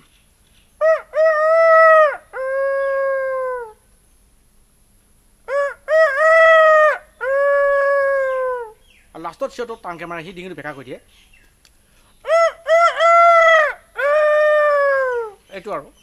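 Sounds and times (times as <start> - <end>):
man imitating rooster crow: 0.8 - 3.8, 5.5 - 8.8, 12.2 - 15.4.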